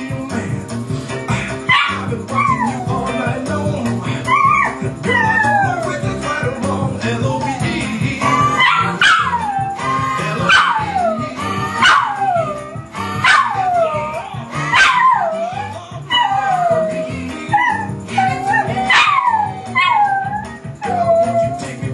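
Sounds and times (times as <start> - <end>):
jazz song: 0.0 - 21.9
dog howling: 1.7 - 3.2, 4.2 - 6.0, 8.4 - 21.8.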